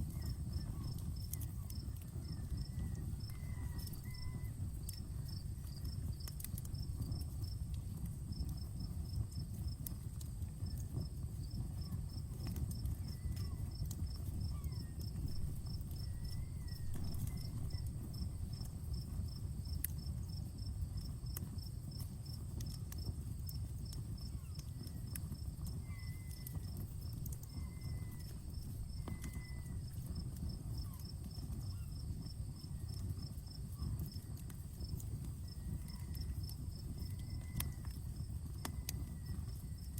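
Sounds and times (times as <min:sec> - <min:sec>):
campfire crackling and popping: 0:00.0 - 0:39.9
insects chirping: 0:10.6 - 0:22.7, 0:23.6 - 0:39.9.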